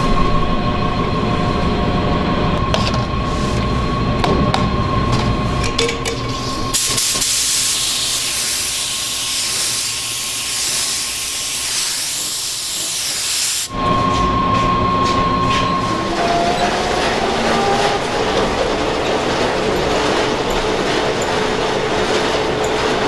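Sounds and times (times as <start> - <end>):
machinery whine and hum: 0.0 - 7.2, 13.7 - 23.0
loud hiss of air or steam: 6.4 - 13.8.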